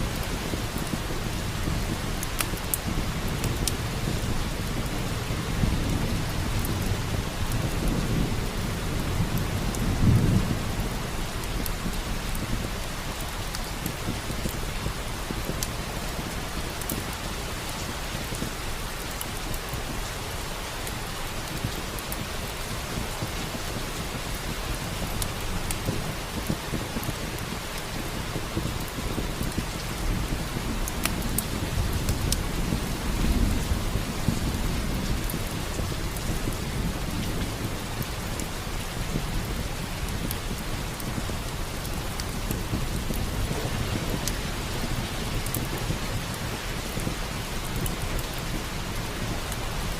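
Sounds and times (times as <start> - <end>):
heavy rain: 0.0 - 49.9
wood fire crackling: 0.0 - 49.9
low roll of thunder: 2.8 - 13.3, 22.9 - 49.9.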